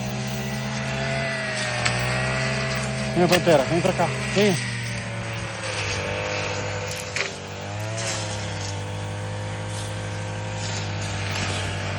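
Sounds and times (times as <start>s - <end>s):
tractor engine running: 0.0s - 11.9s.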